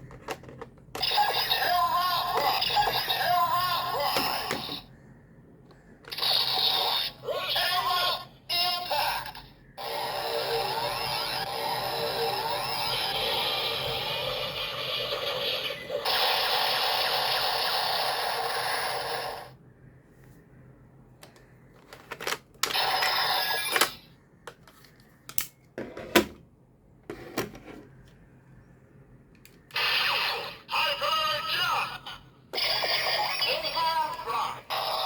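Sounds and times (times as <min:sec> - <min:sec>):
toy electronic sound effects: 0:01.0 - 0:04.9, 0:06.1 - 0:19.6, 0:22.6 - 0:24.1, 0:29.7 - 0:35.0
plastic clicks and snaps: 0:24.5 - 0:25.6.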